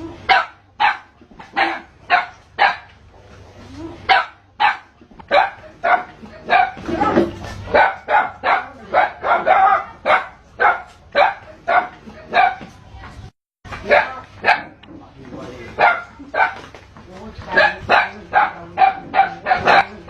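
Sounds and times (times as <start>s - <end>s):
dog barking: 0.3s - 2.9s, 4.1s - 12.6s, 13.8s - 14.8s, 15.8s - 16.7s, 17.5s - 20.0s.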